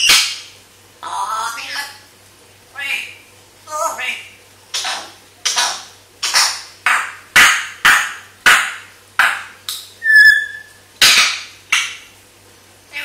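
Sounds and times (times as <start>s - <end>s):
parrot whistle: 0.0s - 0.4s, 10.0s - 11.2s
parrot harsh calls: 2.7s - 11.5s.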